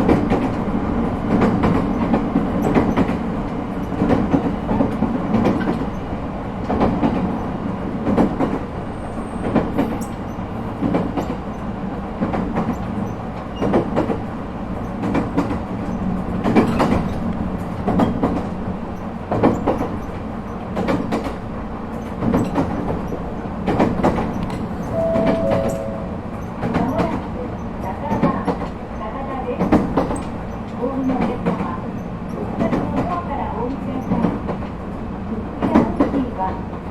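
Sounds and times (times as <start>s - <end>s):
electric train rumbling: 0.0s - 36.9s.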